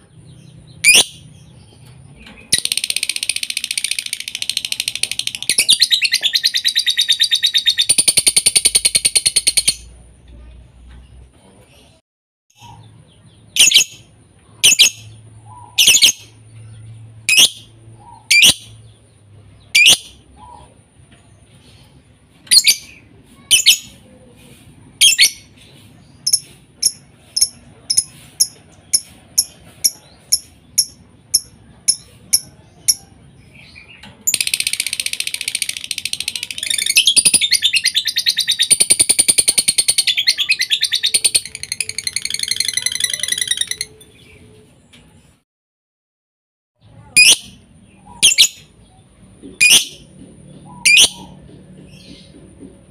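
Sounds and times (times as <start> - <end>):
high-pitched chattering trill: 2.5 - 9.9, 14.6 - 16.4, 26.3 - 33.0, 34.3 - 44.1, 47.0 - 48.7.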